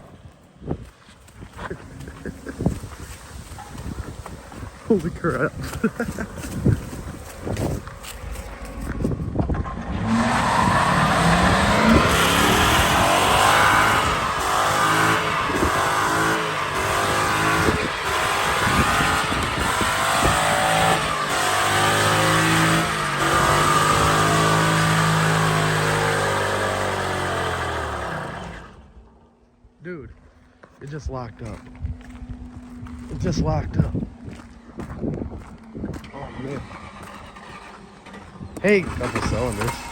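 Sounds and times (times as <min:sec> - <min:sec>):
car engine at high revs: 0:00.0 - 0:29.2, 0:31.4 - 0:39.9.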